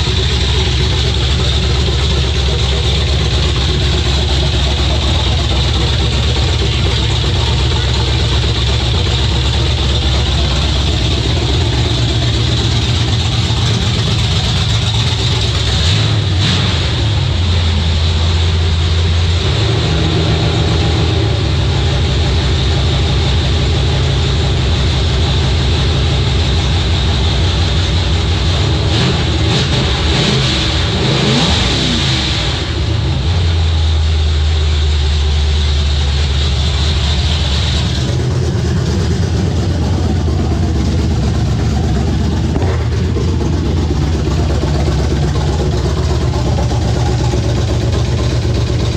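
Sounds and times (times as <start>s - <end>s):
truck engine revving: 0.0s - 48.9s.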